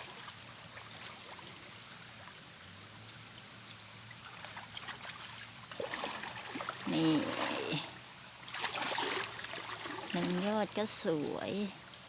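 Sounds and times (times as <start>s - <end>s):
people wading through water: 0.0s - 11.0s.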